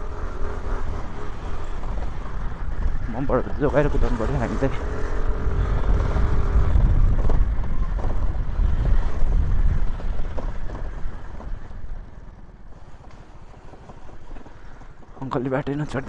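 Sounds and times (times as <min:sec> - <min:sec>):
scooter engine and road noise: 0:00.0 - 0:16.0
wind rumble on microphone: 0:00.0 - 0:16.0.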